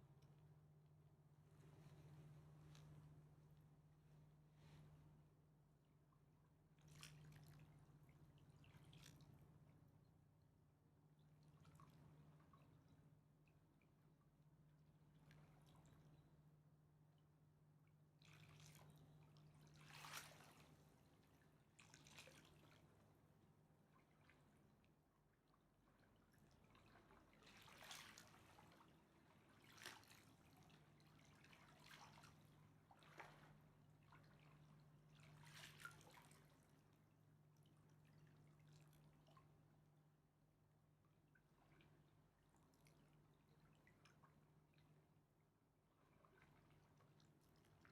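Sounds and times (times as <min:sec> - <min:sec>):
river water lapping at shore: 0:18.6 - 0:23.1, 0:26.6 - 0:36.9.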